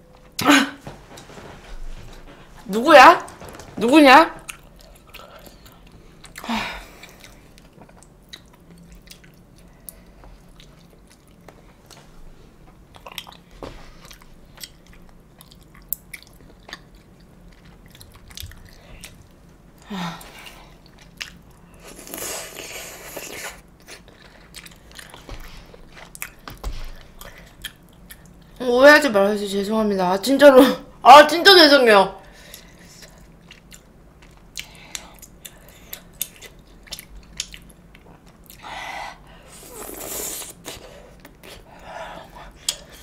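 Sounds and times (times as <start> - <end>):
person chewing food: 4.4 - 12.1, 12.9 - 19.5, 20.2 - 28.6, 32.4 - 43.0.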